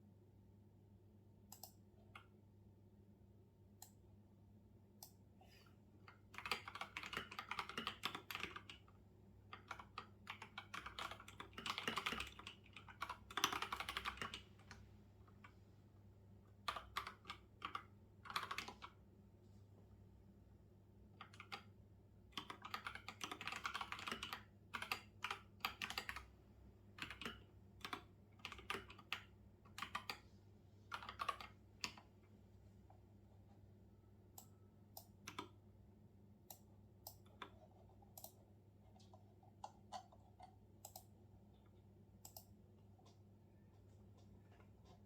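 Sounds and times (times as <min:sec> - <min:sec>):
faint low hum: 0:00.0 - 0:45.0
computer keyboard typing: 0:06.1 - 0:15.5, 0:16.6 - 0:19.0, 0:21.2 - 0:21.8, 0:22.4 - 0:26.3, 0:26.9 - 0:30.2, 0:30.9 - 0:32.1, 0:34.3 - 0:35.6, 0:36.5 - 0:41.2, 0:42.2 - 0:45.0.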